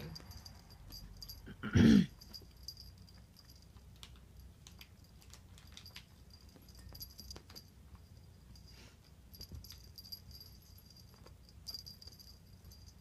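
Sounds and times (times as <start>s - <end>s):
faint clicks and taps: 2.3s - 8.3s.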